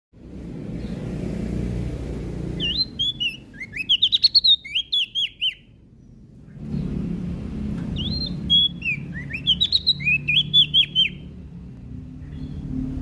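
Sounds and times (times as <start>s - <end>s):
leaf warbler singing: 0.2s - 13.0s.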